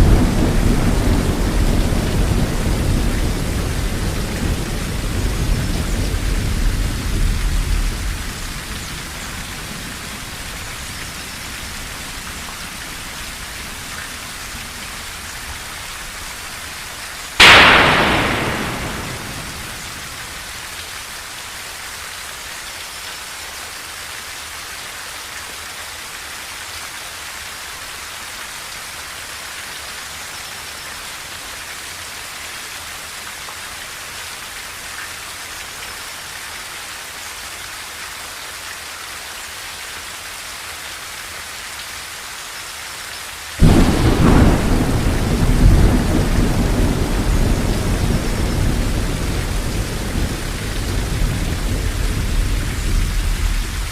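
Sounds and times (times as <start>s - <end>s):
thunder rumbling: 0.0s - 9.2s, 17.4s - 20.7s, 43.6s - 53.9s
rain on a tin roof: 0.0s - 53.9s.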